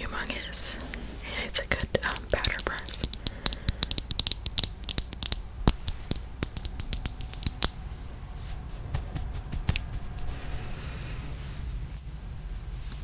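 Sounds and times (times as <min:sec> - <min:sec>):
makeup brush clicking and crackling: 0:01.7 - 0:07.8.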